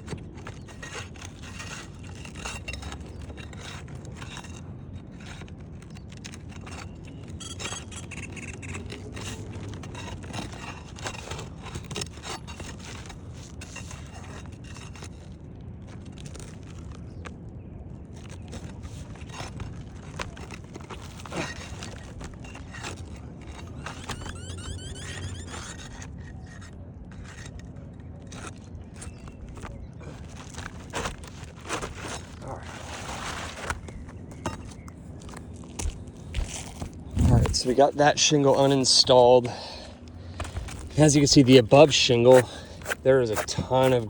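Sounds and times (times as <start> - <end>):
metal tool scraping roof shingle: 0.0 - 17.3, 18.0 - 44.0
low rumble: 36.0 - 38.1.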